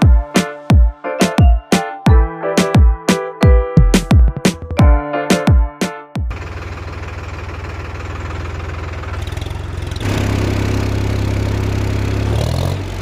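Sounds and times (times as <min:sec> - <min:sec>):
tractor engine idling: 0:06.3 - 0:12.2.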